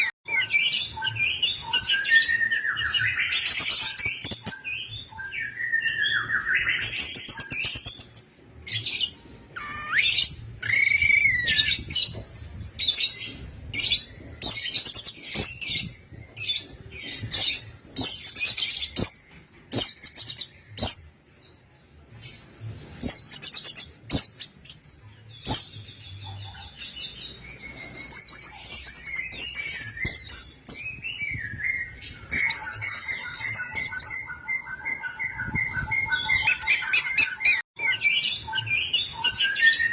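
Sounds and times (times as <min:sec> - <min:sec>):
thrush singing trills and whistles: 0:00.0 - 0:21.2, 0:23.0 - 0:39.9.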